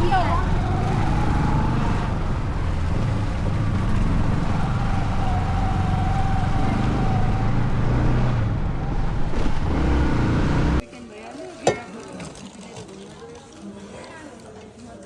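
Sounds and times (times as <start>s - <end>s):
road and wind noise: 0.0s - 10.8s.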